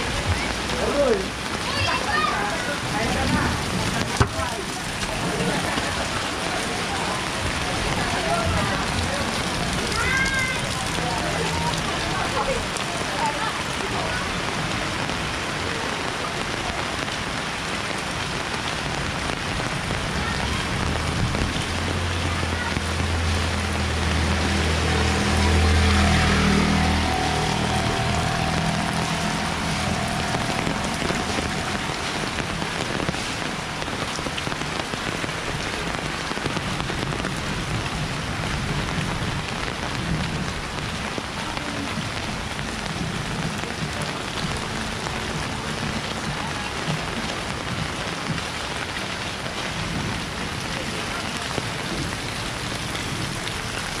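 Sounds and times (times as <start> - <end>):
heavy rain pouring: 0.0 - 54.0
vehicle engine low hum: 22.8 - 33.8.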